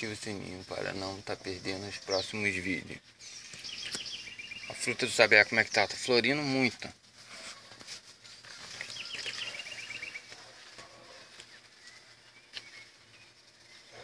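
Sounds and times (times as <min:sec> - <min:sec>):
low steady hum: 0:00.0 - 0:14.0
faint bird trill: 0:03.2 - 0:05.0, 0:08.6 - 0:10.3.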